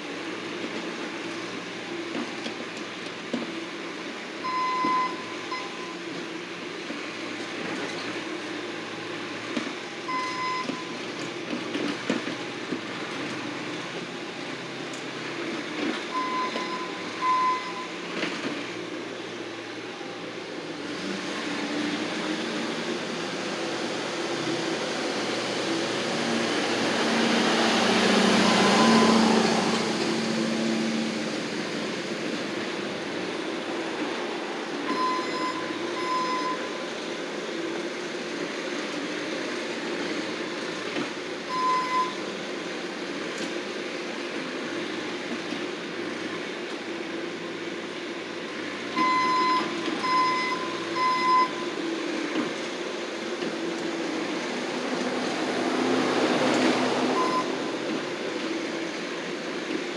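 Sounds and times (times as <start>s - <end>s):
loader engine running: 0.1s - 59.9s
back-up alarm beeping: 4.4s - 6.0s, 10.1s - 11.0s, 16.1s - 18.0s, 26.6s - 30.4s, 34.9s - 36.8s, 41.5s - 42.2s, 49.0s - 51.7s, 57.2s - 57.6s.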